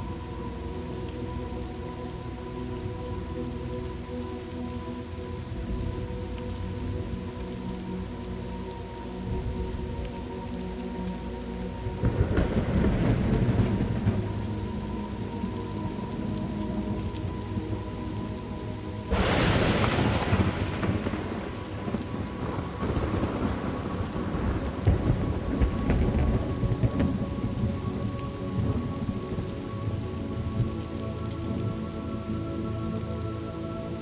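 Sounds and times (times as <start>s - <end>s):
steady rain: 0.0s - 34.0s
thunderclap rumbling: 11.9s - 17.2s, 19.1s - 30.8s.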